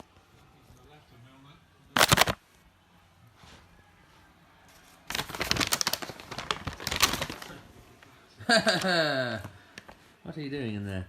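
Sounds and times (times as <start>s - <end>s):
packaging crinkling and rustling: 2.0s - 2.4s, 4.7s - 8.1s.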